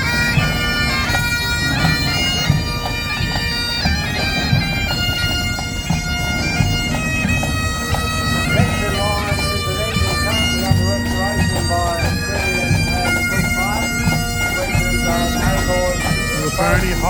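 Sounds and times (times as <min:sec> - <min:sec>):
bagpipe drones: 0:00.0 - 0:17.0
bagpipes playing a melody: 0:00.0 - 0:17.0.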